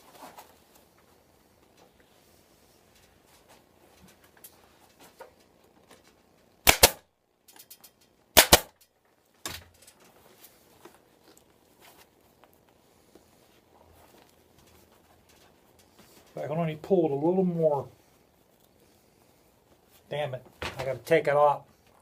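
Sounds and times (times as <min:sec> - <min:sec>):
faint handling rustles: 0:00.0 - 0:06.6, 0:08.9 - 0:22.0
staple gun firing: 0:06.7 - 0:07.0, 0:08.4 - 0:08.7.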